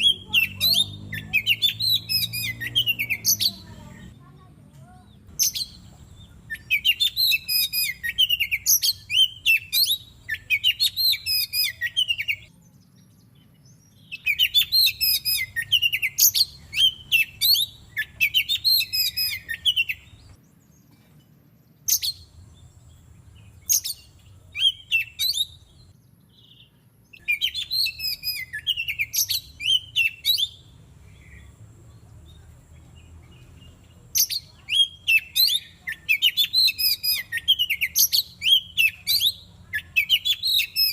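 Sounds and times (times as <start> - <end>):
bird singing whistled phrases: 0.0 - 3.7, 5.4 - 12.6, 13.6 - 20.4, 23.4 - 31.5, 34.2 - 40.9
sharp bird calls: 0.0 - 4.2, 4.9 - 12.6, 13.2 - 21.0, 21.8 - 40.9.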